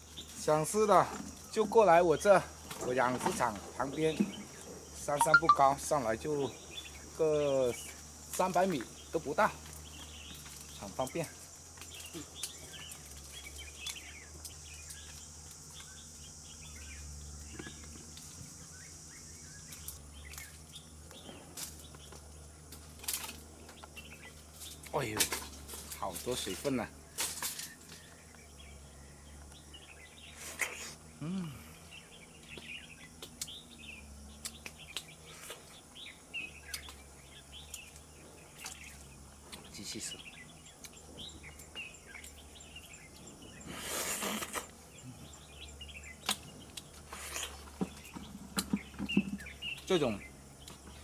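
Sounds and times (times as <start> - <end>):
small birds chirping: 0.0 - 51.0
high-pitched insect buzz: 3.8 - 51.0
short bird chirps: 5.2 - 5.7.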